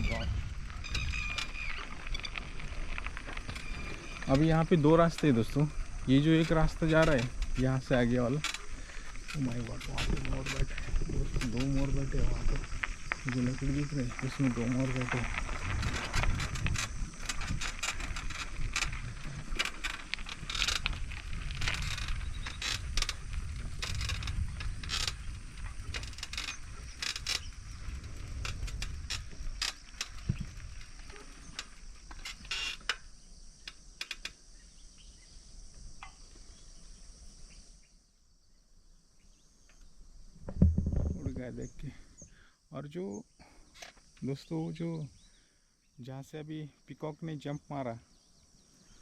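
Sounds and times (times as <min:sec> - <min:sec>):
tyres rumbling: 0:00.0 - 0:32.0
bicycle rattling and clicking: 0:00.5 - 0:34.3.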